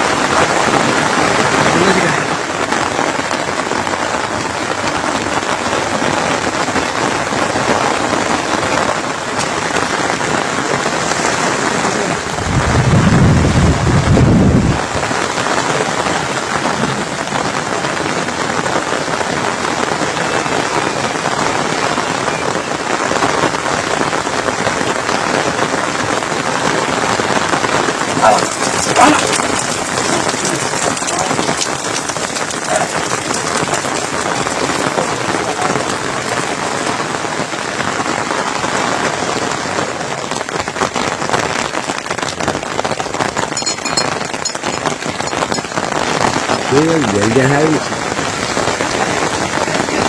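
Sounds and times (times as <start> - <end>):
steady rain falling: 0.0 - 50.0.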